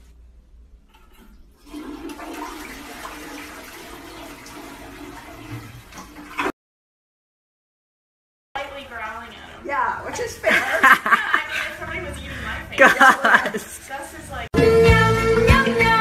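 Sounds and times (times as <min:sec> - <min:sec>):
toilet flushing: 0:00.9 - 0:06.5.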